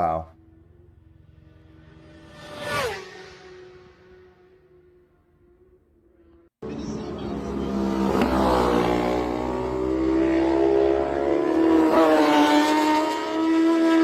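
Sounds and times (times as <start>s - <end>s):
racing motorcycle engine revving: 6.3s - 14.0s.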